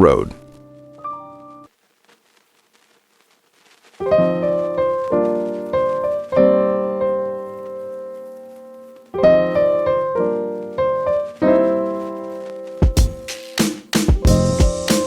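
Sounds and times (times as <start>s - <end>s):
slow piano chords: 0.0s - 1.7s, 4.0s - 13.4s, 14.1s - 15.0s.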